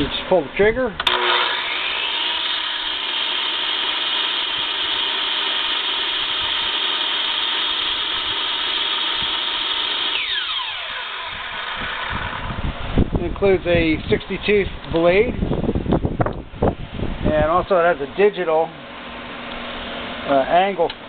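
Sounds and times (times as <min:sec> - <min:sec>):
miter saw whining: 0:01.0 - 0:12.6.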